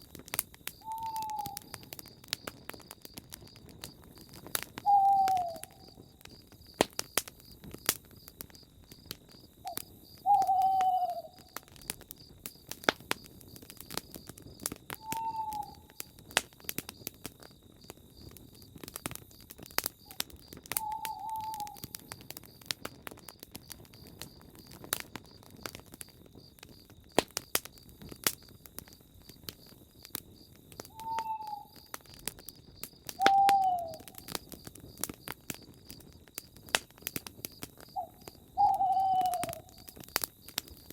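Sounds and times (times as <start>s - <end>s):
campfire crackling and popping: 0.0s - 40.9s
bird call: 0.8s - 1.8s, 4.8s - 5.9s, 9.7s - 11.5s, 15.0s - 16.0s, 20.8s - 22.0s, 30.9s - 31.9s, 33.2s - 34.2s, 37.9s - 39.9s.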